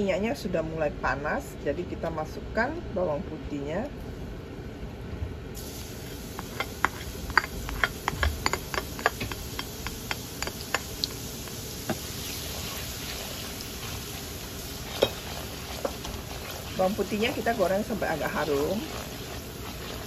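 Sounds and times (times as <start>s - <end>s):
garlic sizzling in oil: 5.6s - 20.0s.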